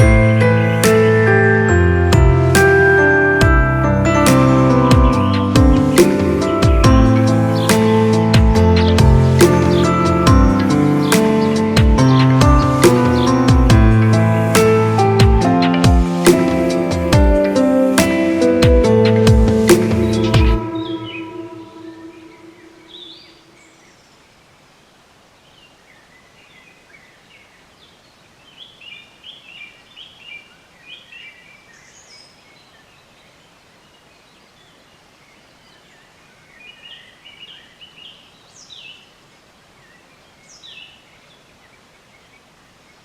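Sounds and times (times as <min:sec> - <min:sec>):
outdoor background hiss: 0:00.0 - 0:43.0
small birds chirping: 0:04.0 - 0:43.0
sharp sweeping bird calls: 0:04.1 - 0:24.3.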